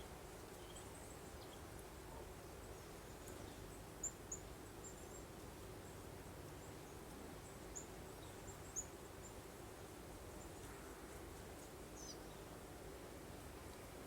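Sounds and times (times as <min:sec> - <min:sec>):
small birds chirping: 0:00.0 - 0:02.0, 0:02.6 - 0:09.4, 0:11.4 - 0:12.6.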